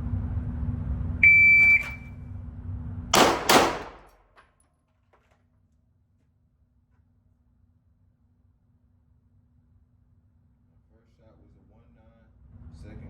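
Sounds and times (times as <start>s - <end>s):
low hum: 0.0s - 4.4s
shot-timer beep: 1.2s - 2.1s
pistol shots: 3.2s - 4.3s.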